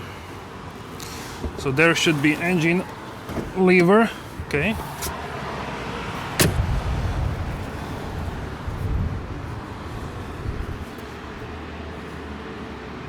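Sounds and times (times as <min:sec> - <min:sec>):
rumbling handling noise: 0:00.6 - 0:05.2, 0:06.2 - 0:12.1
car bonnet clunk: 0:01.3 - 0:01.8, 0:02.8 - 0:05.1, 0:06.4 - 0:06.8.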